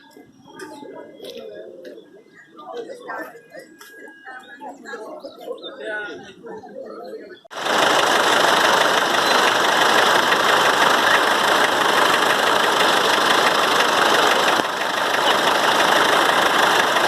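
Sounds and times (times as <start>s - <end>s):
tractor engine running: 7.5s - 17.0s.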